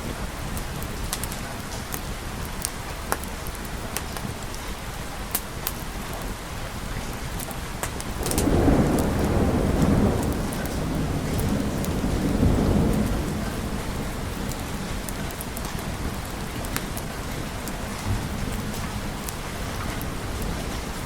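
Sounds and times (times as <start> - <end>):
steady rain: 0.0 - 21.0
thunder rumbling: 8.0 - 21.0.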